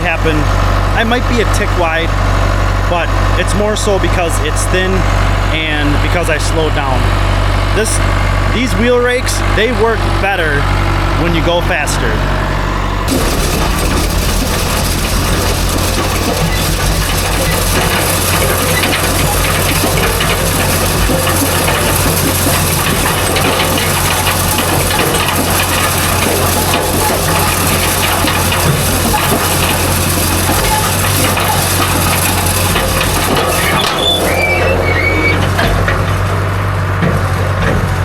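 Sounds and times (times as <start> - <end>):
tractor engine running: 0.0 - 38.0
mechanical rattling: 11.7 - 38.0
short high squeaks: 33.4 - 35.6.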